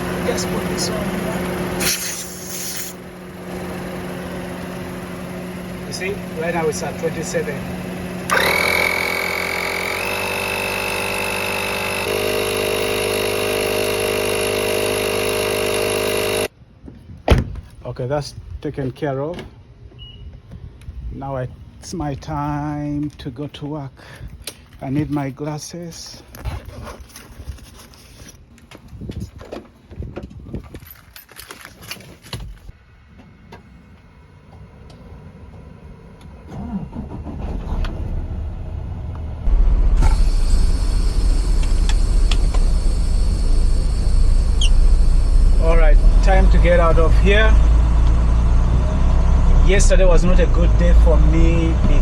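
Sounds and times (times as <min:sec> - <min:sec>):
tire inflator compressor whining: 0:00.0 - 0:16.6, 0:33.3 - 0:52.0
small objects clattering: 0:30.6 - 0:32.7.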